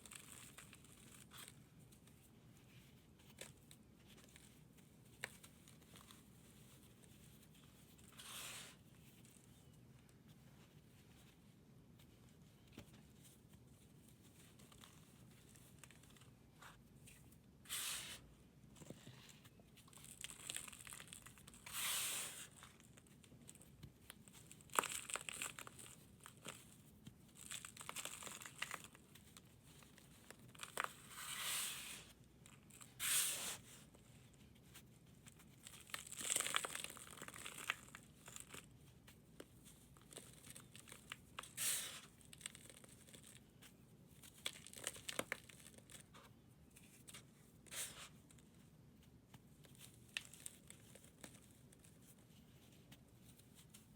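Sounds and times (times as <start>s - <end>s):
brittle material crunching: 19.8s - 21.7s, 22.4s - 31.2s, 35.4s - 43.5s, 44.2s - 46.1s, 49.6s - 51.9s.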